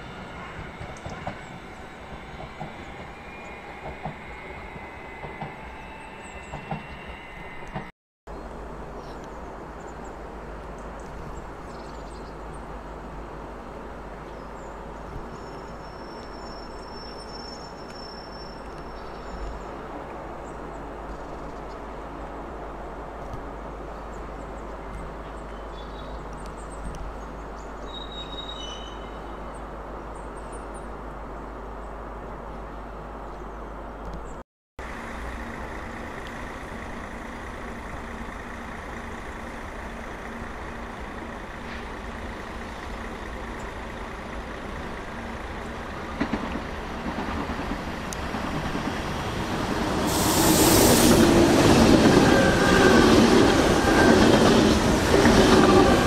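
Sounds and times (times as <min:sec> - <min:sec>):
train passing: 0:00.0 - 0:07.9, 0:34.8 - 0:56.0.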